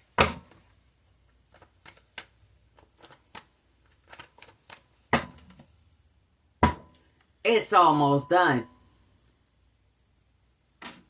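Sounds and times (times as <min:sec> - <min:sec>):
cards being shuffled: 0:01.2 - 0:04.9.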